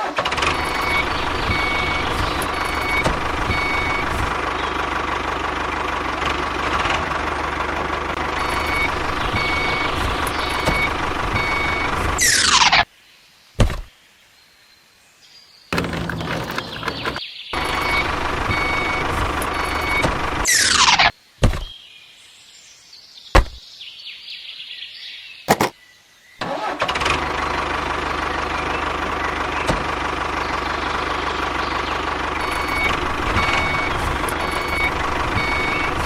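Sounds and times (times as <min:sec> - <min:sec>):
sharp knocks: 0:23.4 - 0:23.6, 0:25.5 - 0:25.7.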